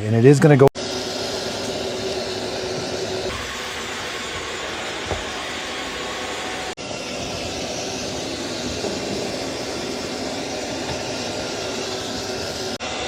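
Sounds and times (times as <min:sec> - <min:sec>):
robot vacuum humming: 0:00.8 - 0:13.0.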